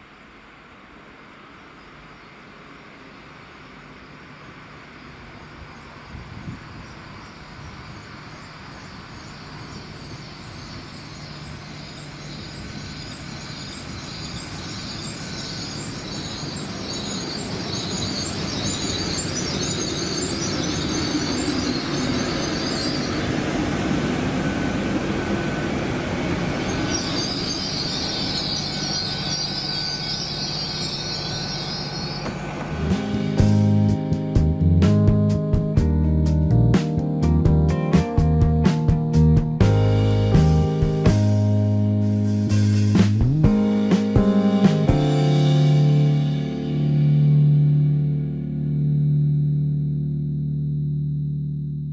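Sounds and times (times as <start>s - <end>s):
train running and slowing: 0.0s - 49.6s
high-pitched brake squeal: 8.8s - 24.2s, 26.2s - 32.8s.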